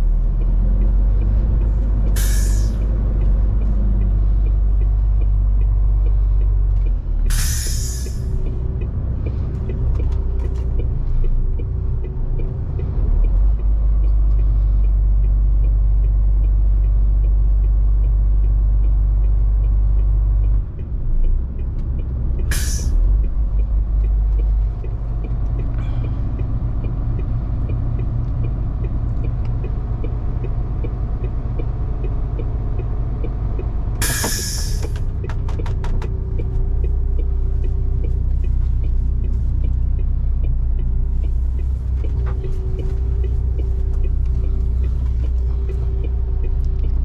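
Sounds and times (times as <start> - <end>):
truck diesel engine driving: 0.0 - 47.0
compressed air hiss: 2.2 - 2.8, 7.3 - 8.3, 22.5 - 23.0, 34.0 - 35.0.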